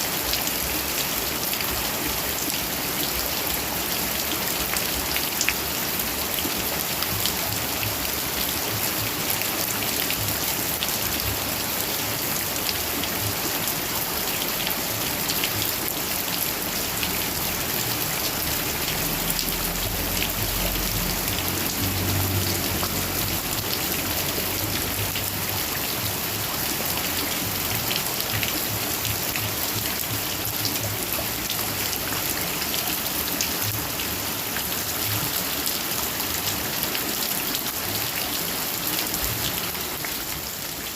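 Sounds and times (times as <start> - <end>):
heavy rain with drop impacts: 0.0 - 40.9.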